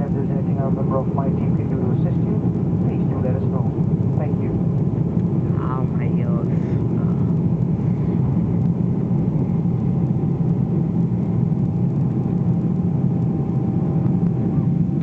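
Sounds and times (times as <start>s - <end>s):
jet engines drone: 0.0s - 15.0s
low hum: 0.0s - 15.0s
airflow: 5.1s - 8.6s.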